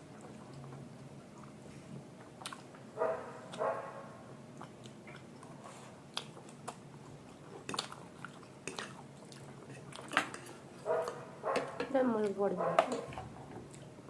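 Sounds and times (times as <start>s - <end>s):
person chewing food: 0.0s - 11.9s, 12.8s - 14.0s.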